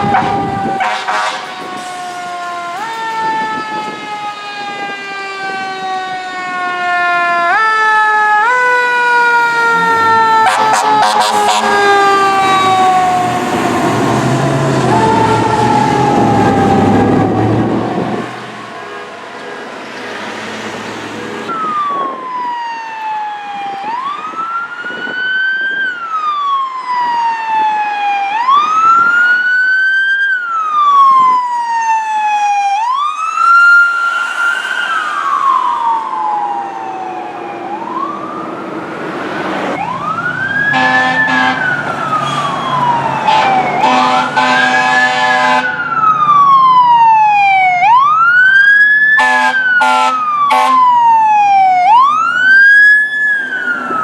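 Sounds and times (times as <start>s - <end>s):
pulsed horn blasts: 0.0s - 1.8s, 10.4s - 13.5s, 33.3s - 36.5s, 40.7s - 45.8s, 49.2s - 50.9s
fire truck siren wailing: 0.0s - 54.0s.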